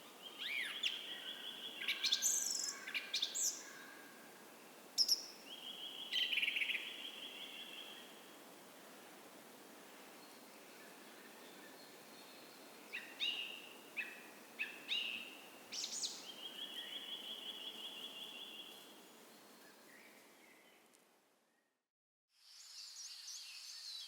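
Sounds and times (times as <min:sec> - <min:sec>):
songbirds singing: 0:00.0 - 0:04.0, 0:10.2 - 0:20.8.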